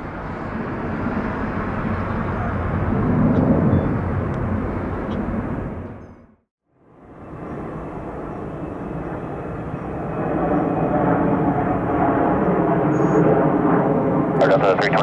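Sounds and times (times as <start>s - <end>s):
jet plane passing: 0.0s - 15.0s.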